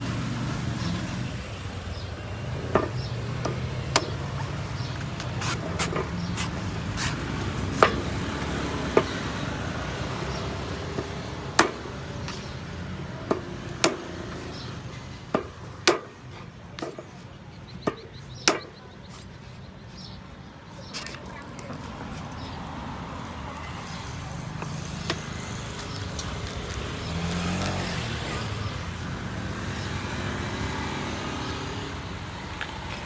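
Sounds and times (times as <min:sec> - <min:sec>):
blade chopping coconut: 0:02.6 - 0:17.1, 0:17.8 - 0:18.8.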